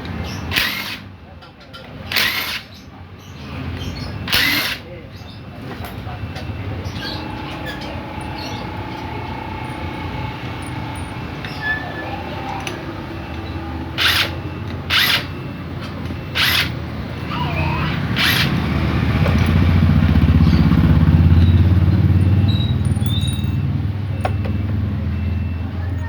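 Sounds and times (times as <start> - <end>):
motorcycle engine passing: 18.0 - 25.0.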